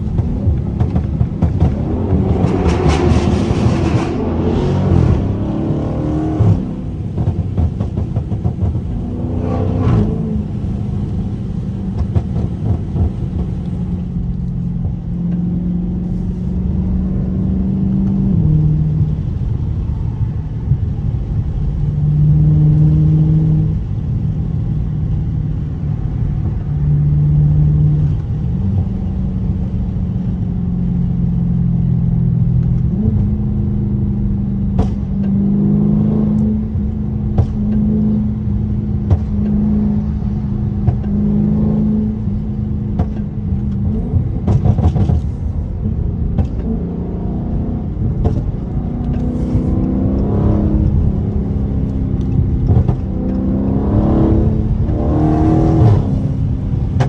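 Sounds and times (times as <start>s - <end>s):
exhaust pops: 0.0s - 16.6s, 34.2s - 35.4s, 36.1s - 46.9s, 47.6s - 57.0s
car engine revving: 0.0s - 57.0s.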